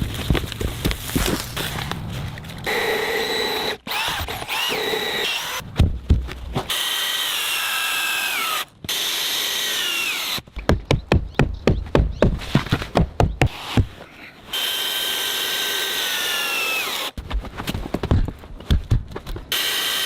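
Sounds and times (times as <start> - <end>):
power drill driving screws into wood: 2.7 - 5.6, 6.7 - 10.4, 14.5 - 17.2, 19.5 - 20.0
rapid knocks: 10.6 - 13.9.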